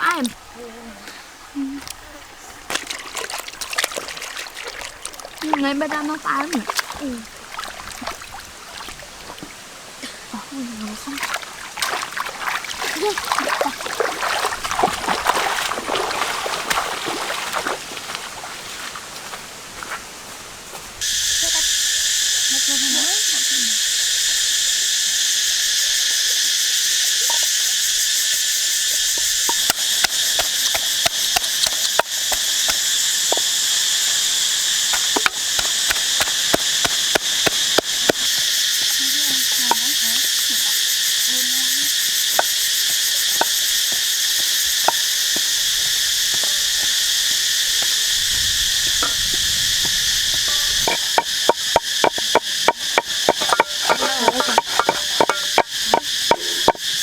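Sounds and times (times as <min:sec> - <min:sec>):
insect chorus: 0:00.0 - 0:57.0
sharp knocks: 0:29.5 - 0:33.5, 0:34.9 - 0:38.4, 0:49.0 - 0:56.8.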